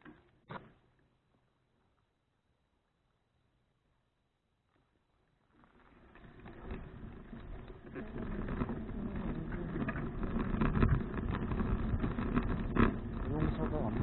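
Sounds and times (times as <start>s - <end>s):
road rumble while cycling: 0.0s - 14.0s
wind noise: 6.6s - 14.0s.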